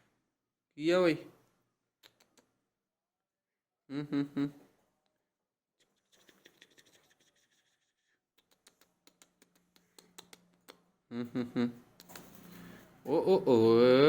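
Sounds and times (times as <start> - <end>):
faint scratching and clicks: 5.8 - 10.8.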